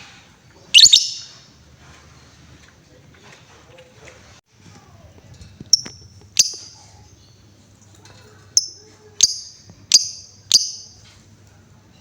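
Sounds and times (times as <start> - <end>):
lovebird shrill chirps: 0.8 - 1.4, 6.4 - 6.8, 8.6 - 11.0.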